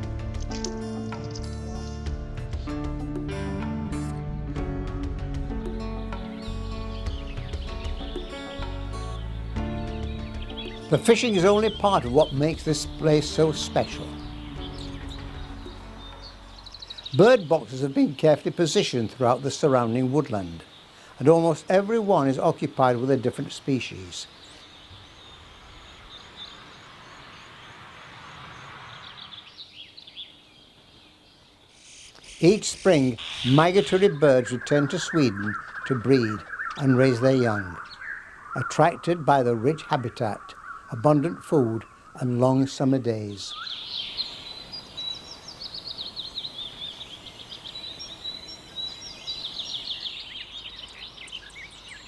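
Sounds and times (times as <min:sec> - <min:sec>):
small birds chirping: 0:05.4 - 0:52.0
steady background hiss: 0:10.8 - 0:52.0.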